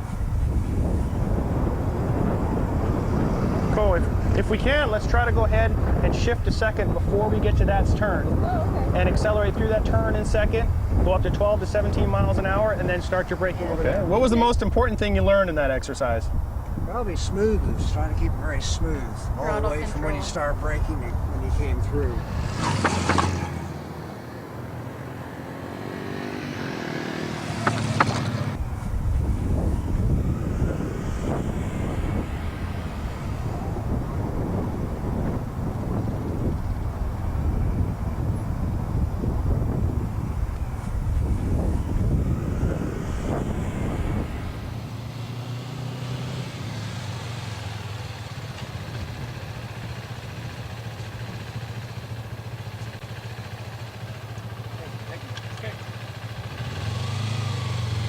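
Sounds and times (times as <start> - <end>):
motorcycle engine accelerating: 0.0 - 14.9, 16.3 - 58.0
motorcycle engine idling: 47.0 - 58.0.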